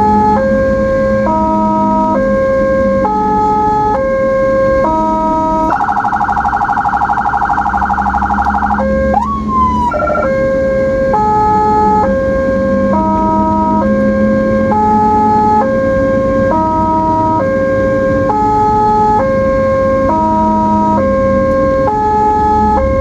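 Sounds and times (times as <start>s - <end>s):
ambulance siren: 0.0s - 23.0s.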